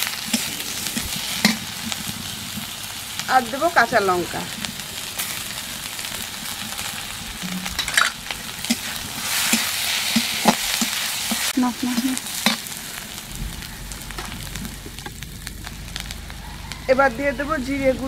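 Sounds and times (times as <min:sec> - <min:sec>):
metal spatula scraping a pan: 0:00.0 - 0:02.7, 0:06.1 - 0:13.0
onions sizzling in oil: 0:00.0 - 0:18.0.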